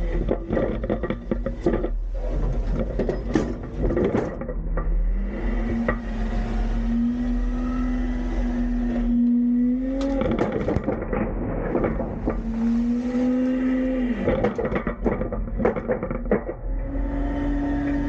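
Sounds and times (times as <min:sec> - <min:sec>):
container clanking and banging: 0:00.0 - 0:06.1, 0:09.9 - 0:16.7
diesel engine revving: 0:03.7 - 0:15.4.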